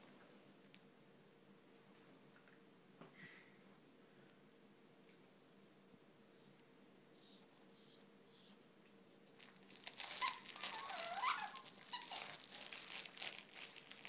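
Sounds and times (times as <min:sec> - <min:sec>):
crinkling and rustling: 0:09.3 - 0:14.0
puppy whining: 0:09.8 - 0:13.0.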